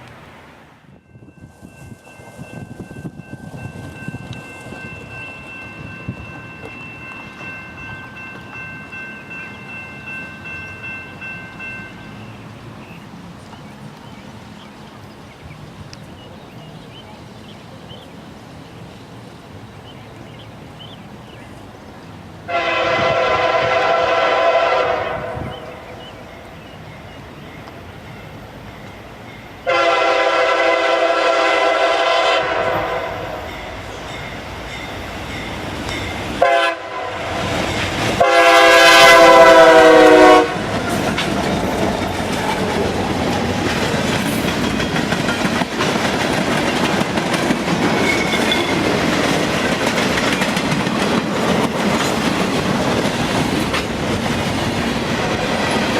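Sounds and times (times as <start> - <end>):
train rumbling past on rails: 0.0 - 55.9
locomotive air horn blasts: 22.5 - 25.8, 29.6 - 33.5, 36.4 - 37.6, 38.2 - 40.8.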